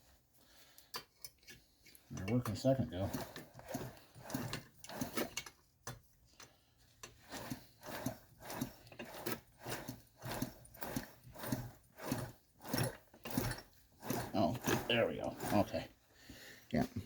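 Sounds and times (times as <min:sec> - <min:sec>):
small engine turned over by hand: 0:02.4 - 0:05.6, 0:07.1 - 0:15.8.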